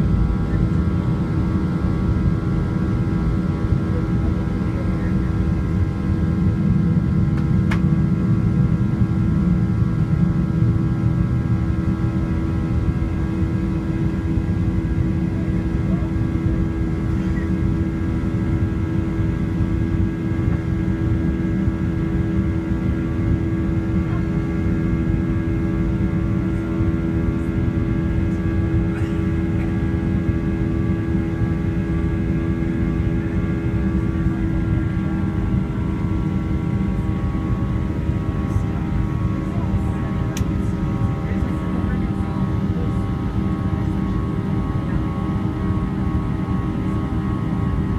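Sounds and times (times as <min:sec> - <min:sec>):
jet engines humming: 0:00.0 - 0:47.9.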